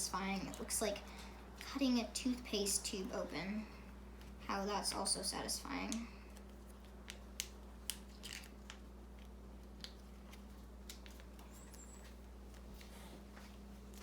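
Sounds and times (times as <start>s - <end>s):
plastic packet clicking and crinkling: 5.9s - 11.5s.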